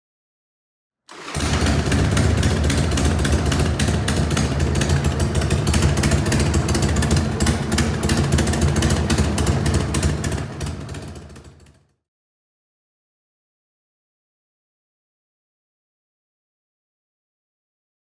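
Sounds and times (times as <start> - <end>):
motorcycle engine idling: 1.2 - 11.8.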